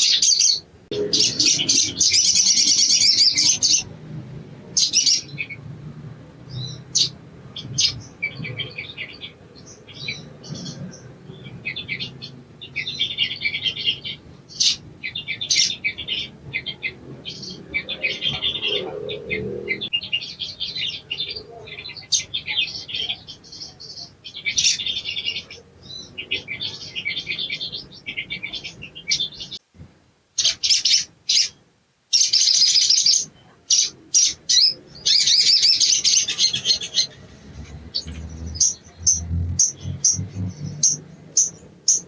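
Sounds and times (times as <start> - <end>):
bird chattering song: 0.0 - 4.0, 6.5 - 29.6, 32.2 - 42.0.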